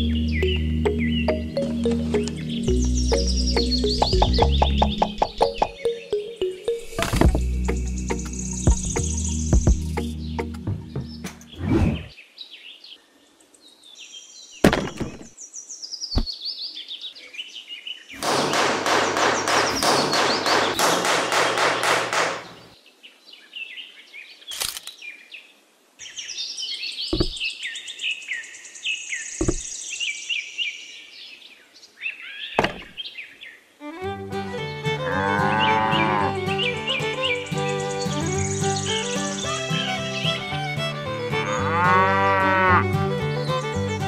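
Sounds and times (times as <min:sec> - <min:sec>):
birds chirping: 0:00.0 - 0:25.4, 0:26.0 - 0:44.0
wooden hammer knocking posts: 0:04.0 - 0:05.8, 0:18.2 - 0:22.6, 0:27.1 - 0:27.4, 0:29.4 - 0:29.7, 0:32.6 - 0:33.0.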